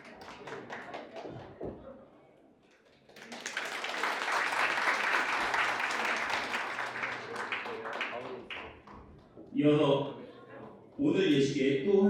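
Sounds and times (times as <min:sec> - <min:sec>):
crowd applauding: 0:00.0 - 0:01.6, 0:02.8 - 0:09.0.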